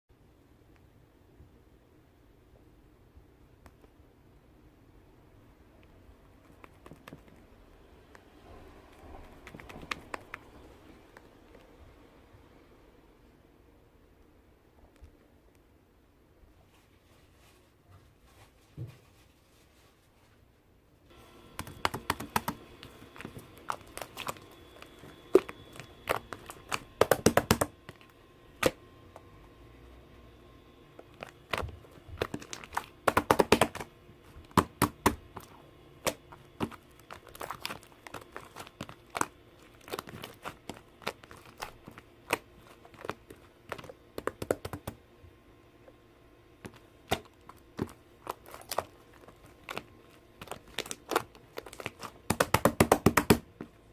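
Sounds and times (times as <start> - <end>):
slime clicking and popping: 9.2 - 10.6, 21.6 - 28.8, 31.0 - 33.9, 34.5 - 45.0, 46.7 - 53.4.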